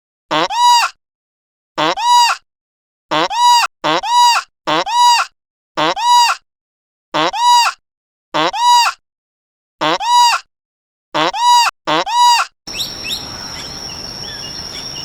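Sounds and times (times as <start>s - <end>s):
nasal honking animal call: 12.7s - 15.0s.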